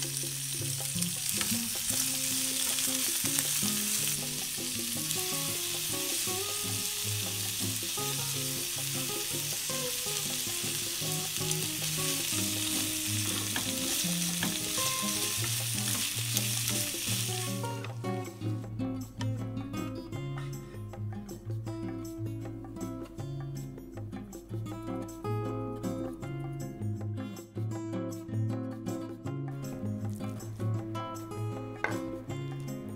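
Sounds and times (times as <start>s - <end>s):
food sizzling in a frying pan: 0.0s - 18.2s.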